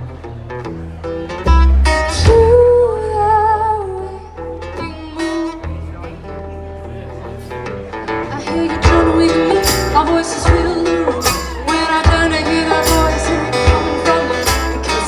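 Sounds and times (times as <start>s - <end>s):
bass line: 0.0s - 15.0s
guitar: 0.0s - 15.0s
person singing: 8.3s - 15.0s
drum and cymbal beat: 8.9s - 15.0s.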